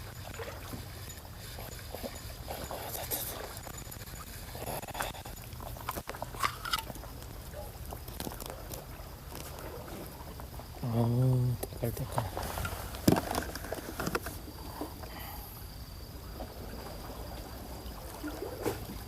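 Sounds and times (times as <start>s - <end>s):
fishing tackle clicking and rustling: 0.0s - 9.9s, 11.5s - 15.1s.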